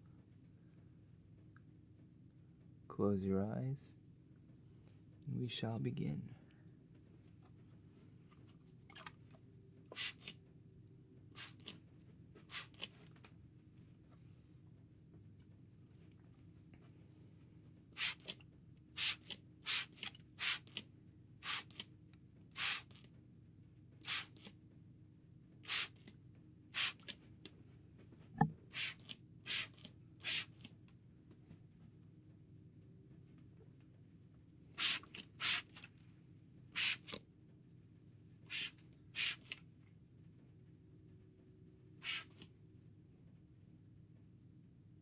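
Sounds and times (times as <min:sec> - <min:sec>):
spray bottle squirting: 0:08.9 - 0:09.1, 0:09.9 - 0:10.3, 0:11.4 - 0:11.7, 0:12.5 - 0:12.9, 0:18.0 - 0:18.4, 0:19.0 - 0:20.8, 0:21.4 - 0:21.8, 0:22.6 - 0:23.0, 0:24.0 - 0:24.5, 0:25.6 - 0:26.0, 0:26.8 - 0:27.1, 0:28.7 - 0:30.7, 0:34.8 - 0:35.8, 0:36.8 - 0:37.2, 0:38.5 - 0:39.6, 0:42.0 - 0:42.4.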